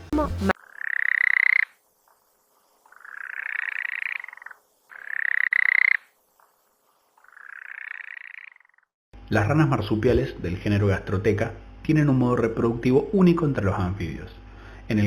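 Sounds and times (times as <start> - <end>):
frogs trilling: 0.5 - 8.9.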